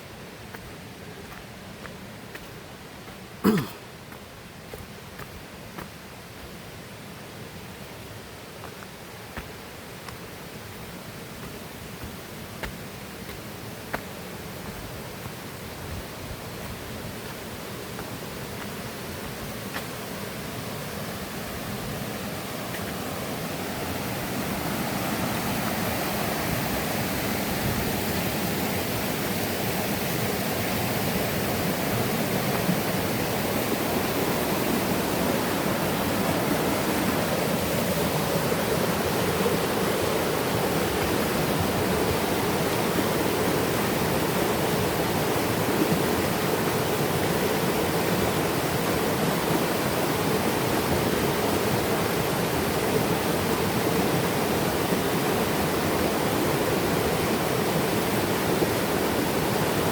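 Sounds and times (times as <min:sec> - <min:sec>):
river and waterfall roaring: 0:00.0 - 0:59.9.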